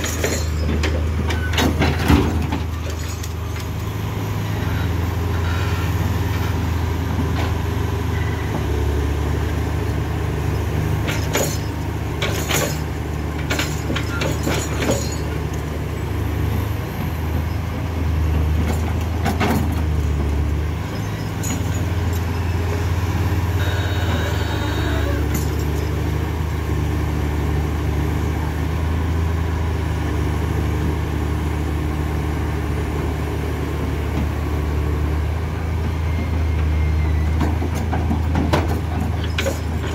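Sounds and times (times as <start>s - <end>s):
heavy truck engine droning: 0.0s - 39.9s
sharp knocks and clanks: 37.4s - 39.9s.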